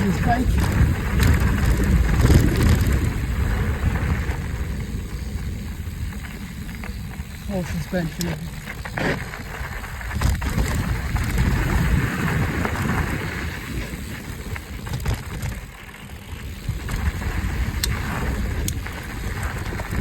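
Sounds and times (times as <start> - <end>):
bike clicks and knocks: 0.0 - 3.2, 8.1 - 13.0, 13.7 - 20.0
bike rolling on dirt trail: 0.0 - 20.0
wind buffeting microphone: 0.0 - 20.0.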